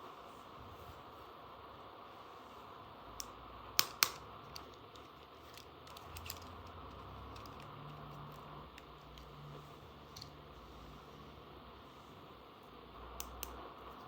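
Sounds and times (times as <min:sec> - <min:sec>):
plastic toy pieces clicking: 0:03.8 - 0:09.3.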